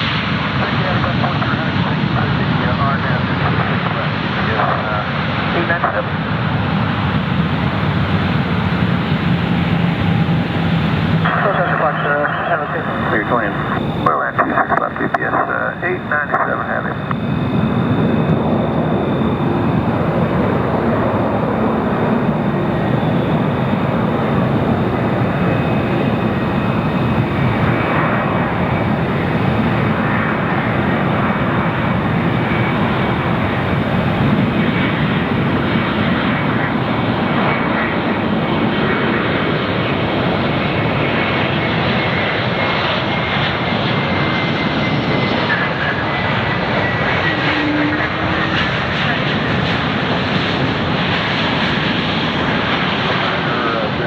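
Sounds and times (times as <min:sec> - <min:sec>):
jet engines roaring: 0:00.0 - 0:54.0
high whine falling in pitch: 0:06.4 - 0:43.6.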